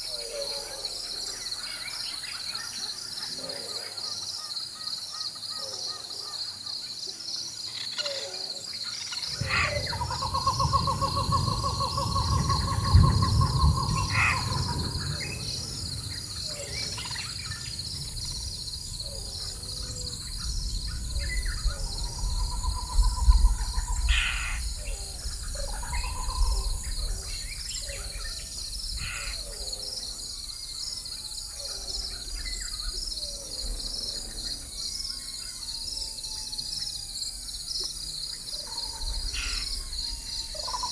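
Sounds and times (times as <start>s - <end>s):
insects chorus: 0.0s - 40.9s
bird calls: 7.7s - 30.1s
harsh caws: 9.3s - 15.8s
distant thunder rumbles: 9.3s - 30.5s.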